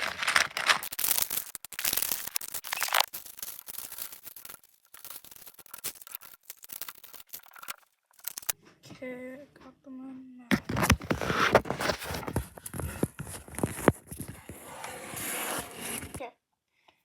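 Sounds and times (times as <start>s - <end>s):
dense rustling crackle: 0.0s - 8.6s.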